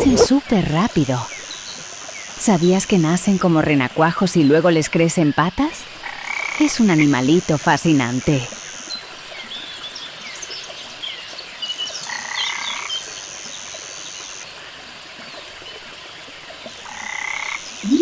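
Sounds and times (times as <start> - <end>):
frogs calling: 0.0 - 0.6, 16.8 - 18.0.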